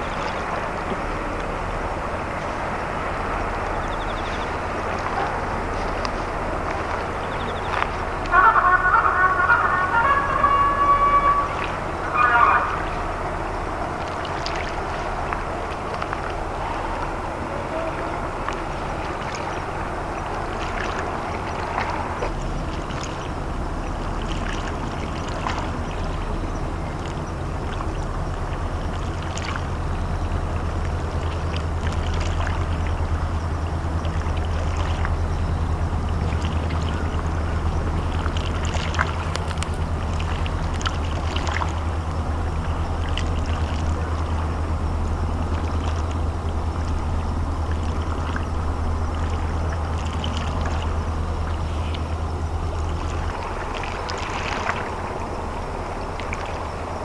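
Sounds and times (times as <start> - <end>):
ship engine droning: 0.0 - 57.0
water noise: 0.0 - 57.0.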